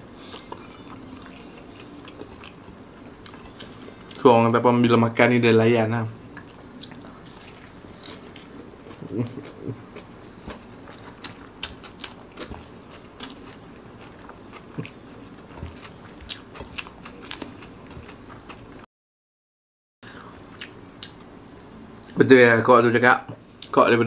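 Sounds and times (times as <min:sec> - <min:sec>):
close chewing with mouth clicks: 0:00.2 - 0:04.2, 0:06.3 - 0:18.8.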